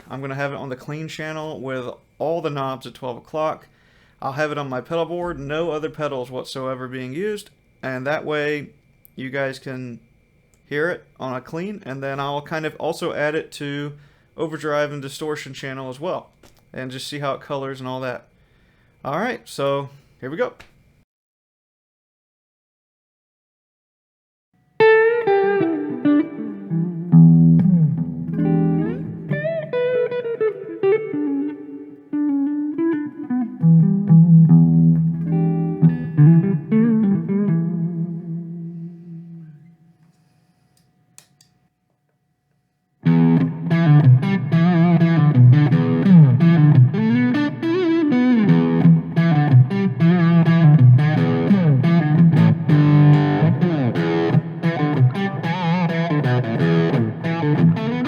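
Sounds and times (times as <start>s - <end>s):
electric guitar phrase: 24.8s - 39.7s, 43.0s - 58.0s
driven electric guitar riff: 24.8s - 39.9s, 43.0s - 58.0s.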